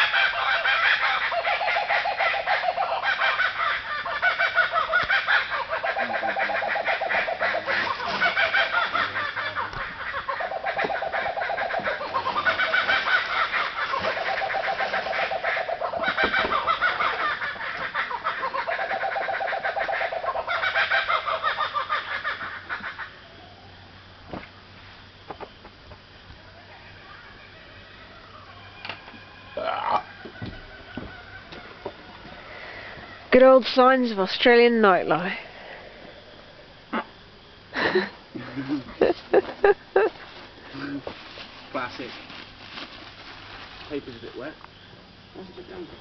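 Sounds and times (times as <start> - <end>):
kookaburras laughing: 0.0 - 23.8, 29.5 - 41.1.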